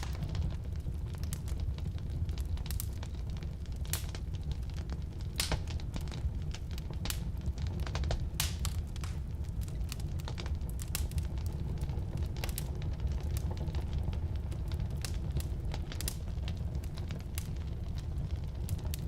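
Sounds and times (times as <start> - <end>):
fire rumbling in fireplace: 0.0 - 19.0
firewood crackling and popping: 0.0 - 19.0.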